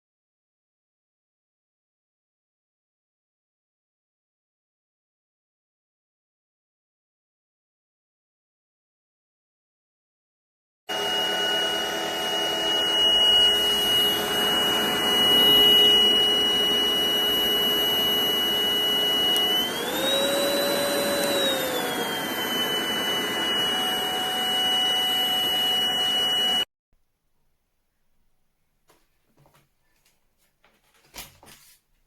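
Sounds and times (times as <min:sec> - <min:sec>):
vacuum cleaner motor whining: 0:10.9 - 0:26.7.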